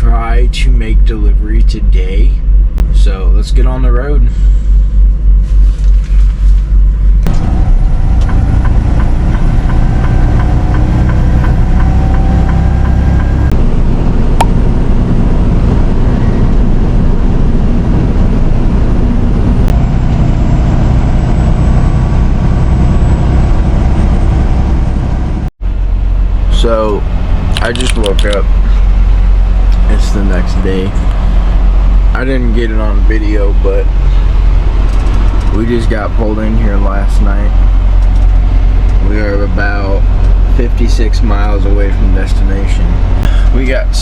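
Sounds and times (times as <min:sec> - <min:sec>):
diesel truck engine rumbling: 0:00.0 - 0:44.0.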